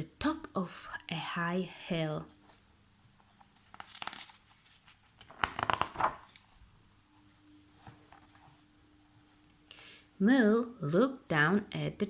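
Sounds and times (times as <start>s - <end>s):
paper rustling and crinkling: 2.4s - 6.7s.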